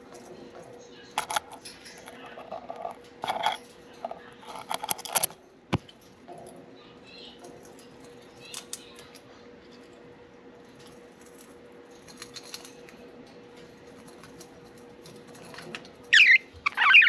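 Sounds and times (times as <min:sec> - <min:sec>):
budgies chirping: 0:16.2 - 0:17.0.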